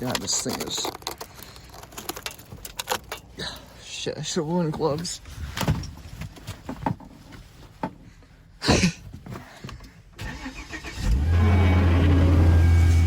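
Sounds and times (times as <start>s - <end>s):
car engine starting and idling: 10.2s - 13.0s.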